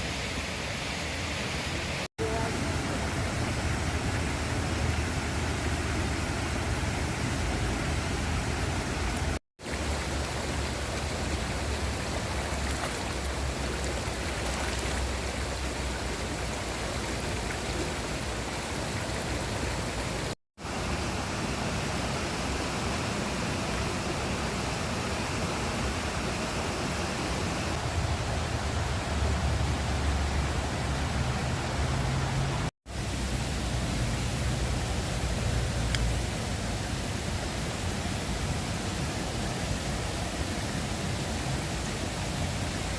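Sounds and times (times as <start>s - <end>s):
river water rushing: 9.6s - 28.1s.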